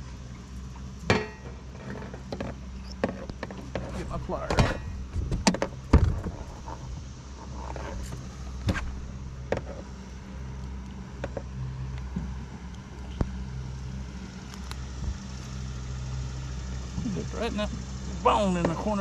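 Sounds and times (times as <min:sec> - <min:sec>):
boat engine idling: 0:00.0 - 0:19.0
handling knocks and clicks: 0:01.0 - 0:06.8.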